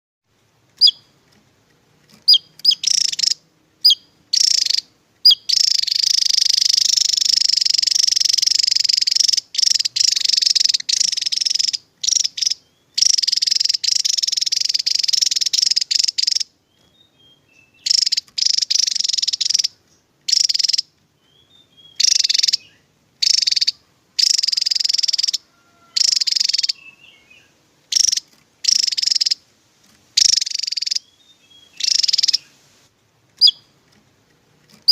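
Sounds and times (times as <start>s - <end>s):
bird singing high buzzy trills: 0.8s - 1.2s, 2.1s - 29.5s, 30.1s - 32.7s, 33.4s - 33.9s, 34.7s - 34.9s.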